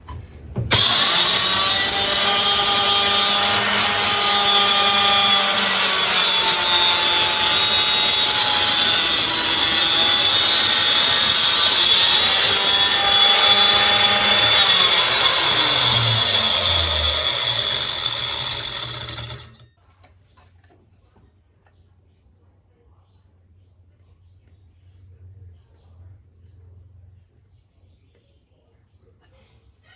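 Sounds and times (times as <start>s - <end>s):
circular saw cutting wood: 0.7s - 19.7s.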